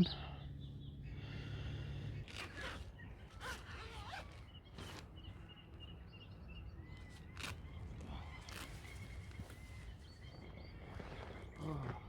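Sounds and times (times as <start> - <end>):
small birds chirping: 0.0 - 12.0
tent zipper rasping: 2.3 - 5.0.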